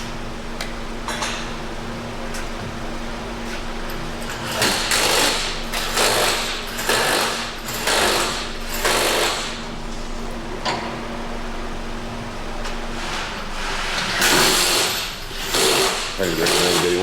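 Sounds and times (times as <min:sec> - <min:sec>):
pneumatic impact wrench bursts: 0:04.4 - 0:09.6, 0:14.1 - 0:17.0.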